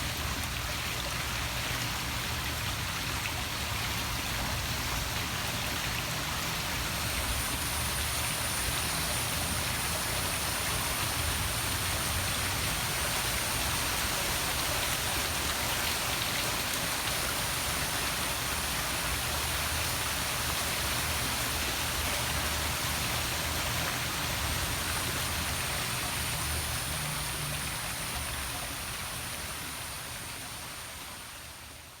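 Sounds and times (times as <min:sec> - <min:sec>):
waterfall splashing into pool: 0:00.0 - 0:32.0
thin steady high tone: 0:06.7 - 0:32.0.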